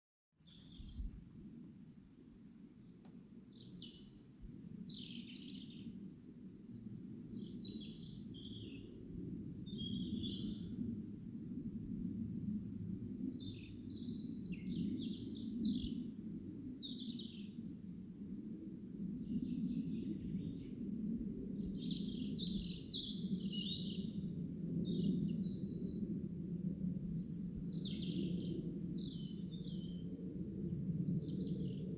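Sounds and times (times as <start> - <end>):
songbird singing: 0.4 - 1.2, 2.8 - 9.0, 9.7 - 10.8, 12.3 - 17.7, 21.5 - 26.1, 27.1 - 31.9.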